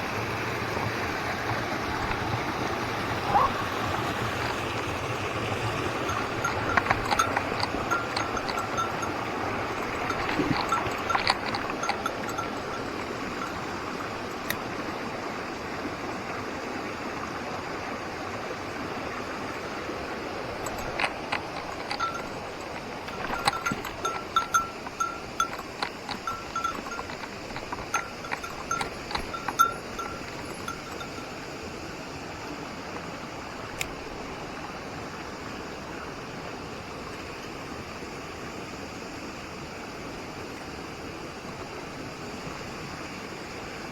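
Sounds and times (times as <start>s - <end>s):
mountain stream rushing: 0.0s - 43.9s
small bell jingling: 5.6s - 14.6s, 20.2s - 31.6s.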